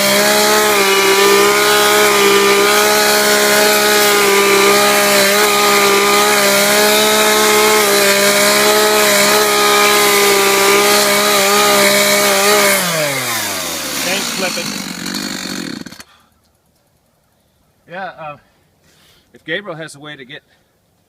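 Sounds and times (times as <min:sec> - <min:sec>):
chainsaw engine running: 0:00.0 - 0:16.1.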